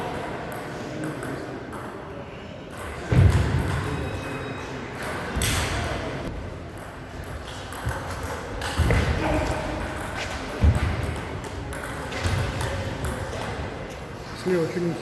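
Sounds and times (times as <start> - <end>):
table tennis ball hits: 6.7 - 10.1.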